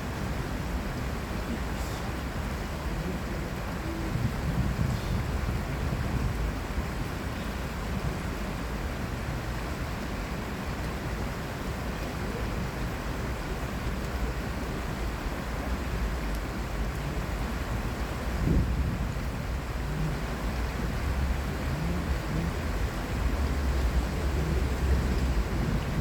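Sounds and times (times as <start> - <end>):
flowing water rushing: 0.0 - 26.0
low rumble of traffic: 0.0 - 26.0
wind gust on microphone: 1.2 - 8.4, 13.9 - 26.0.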